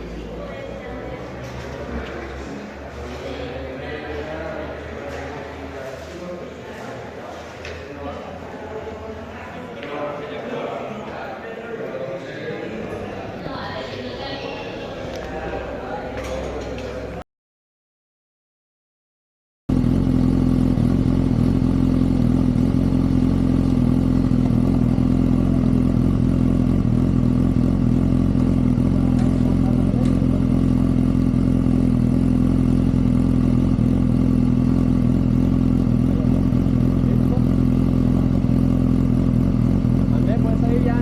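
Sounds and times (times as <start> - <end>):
motorcycle engine running: 19.7 - 41.0.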